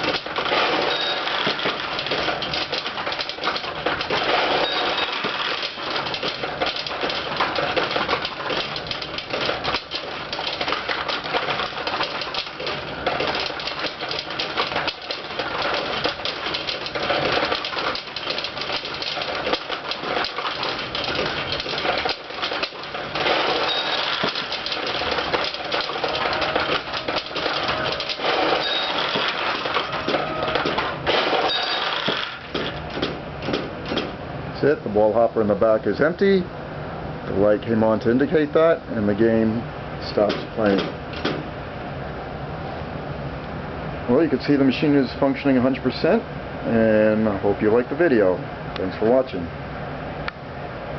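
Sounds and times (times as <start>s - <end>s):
steel balls clattering: 0.0s - 34.1s.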